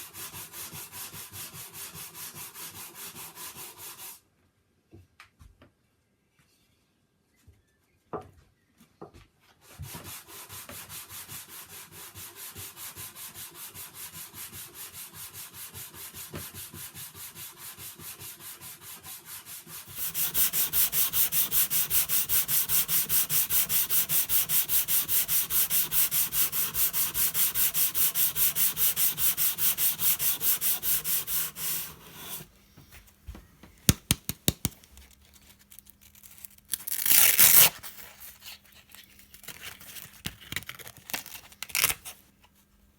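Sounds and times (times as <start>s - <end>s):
sandpaper rubbing on wood: 9.9s - 32.5s, 33.9s - 34.8s.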